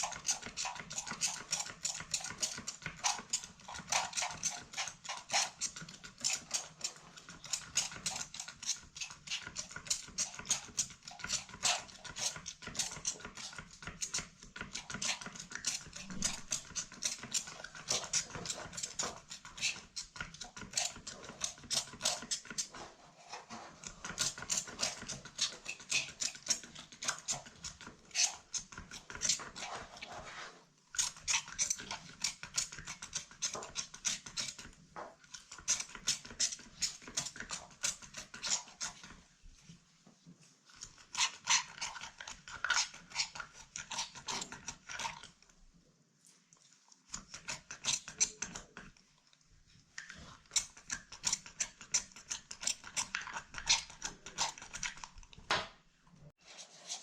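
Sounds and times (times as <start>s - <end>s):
scratchy scrubbing strokes: 20.5s - 28.6s, 29.2s - 32.0s, 56.4s - 57.0s.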